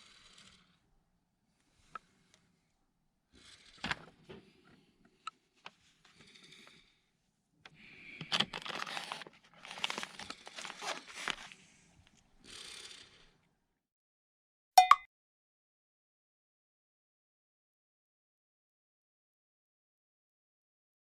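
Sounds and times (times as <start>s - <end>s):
rustling and tearing: 8.5s - 11.6s.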